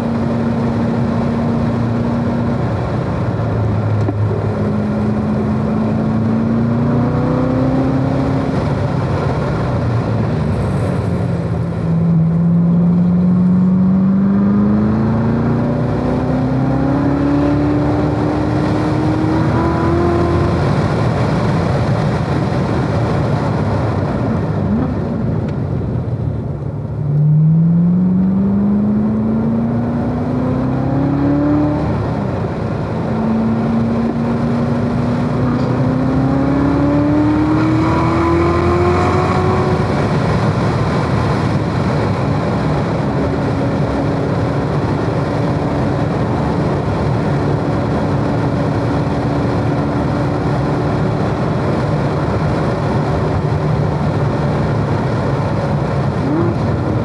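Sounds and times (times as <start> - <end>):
car engine accelerating: 0.0 - 57.0
wind and tyre noise: 0.0 - 57.0.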